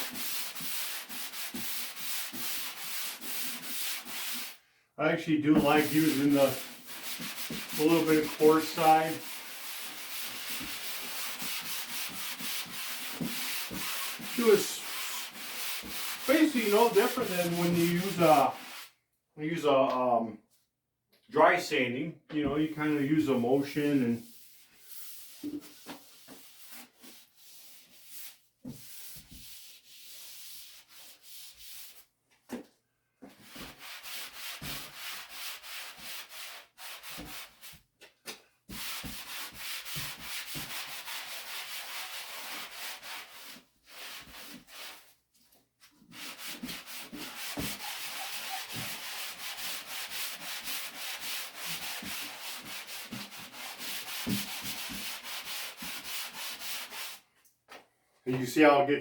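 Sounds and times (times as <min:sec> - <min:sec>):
wet sponge sanding drywall: 0:00.0 - 0:04.6, 0:05.4 - 0:18.9, 0:22.6 - 0:32.1, 0:33.3 - 0:37.8, 0:38.7 - 0:45.2, 0:45.8 - 0:57.3.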